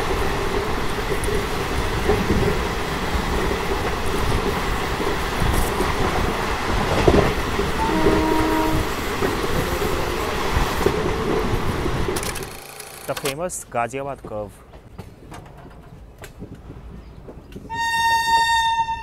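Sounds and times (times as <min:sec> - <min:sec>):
moving train wheels on rail: 0:00.0 - 0:19.0
train horn: 0:07.8 - 0:09.1, 0:17.7 - 0:19.0.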